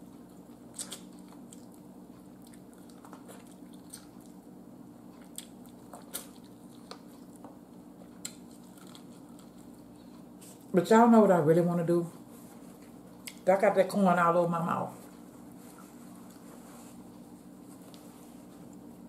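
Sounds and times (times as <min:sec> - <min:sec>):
person chewing corn crunches: 0:00.0 - 0:10.7
faint low hum: 0:00.0 - 0:19.0.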